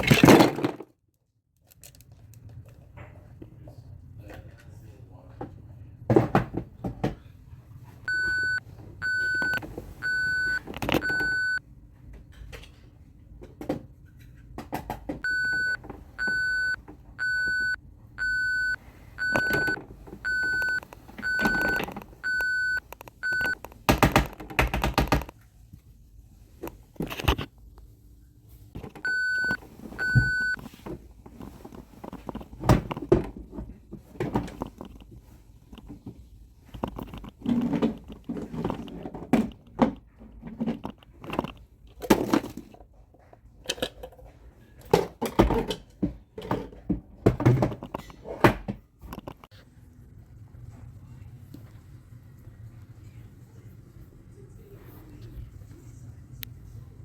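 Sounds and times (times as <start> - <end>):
plastic toy knocking and clattering: 0.0 - 0.9, 22.9 - 25.3
toy reversing beeper: 8.1 - 11.6, 15.2 - 23.6, 29.0 - 30.6.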